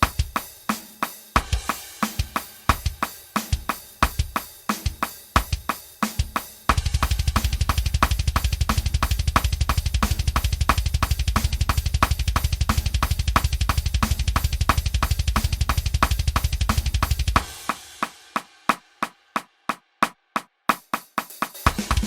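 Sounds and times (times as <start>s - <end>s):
cymbals: 0.0s - 19.8s
fast metal drum beat: 0.0s - 22.0s
snare drum hits: 0.0s - 22.0s
double bass drum roll: 6.7s - 18.1s.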